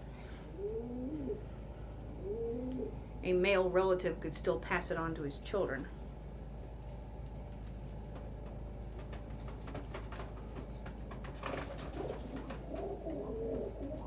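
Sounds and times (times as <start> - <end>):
pigeons cooing: 0.0 - 3.2, 8.1 - 14.0.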